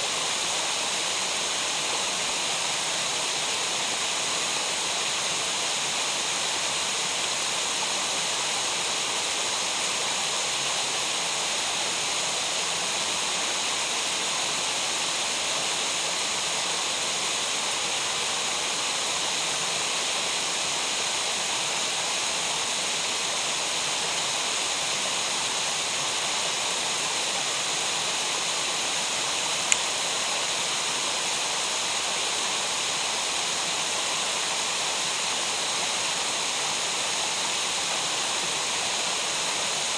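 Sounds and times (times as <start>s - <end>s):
rushing water: 0.0s - 39.9s
sharp click: 29.6s - 30.0s.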